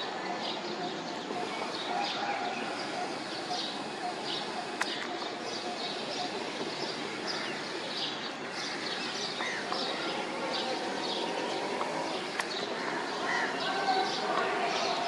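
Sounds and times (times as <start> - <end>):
birds chirping: 0.0 - 15.0
city noise hum: 0.0 - 15.0
sharp click: 4.7 - 5.2, 11.8 - 12.6.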